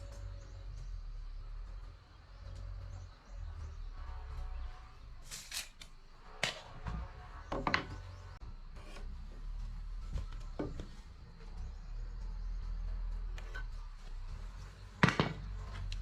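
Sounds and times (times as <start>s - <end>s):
wooden boards and tools knocking: 6.4s - 8.2s, 10.2s - 11.0s, 15.0s - 15.9s.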